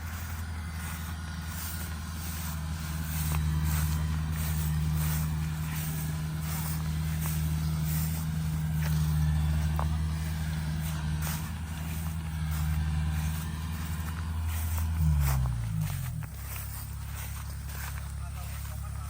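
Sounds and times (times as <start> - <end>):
combine harvester diesel engine running: 0.0 - 19.0.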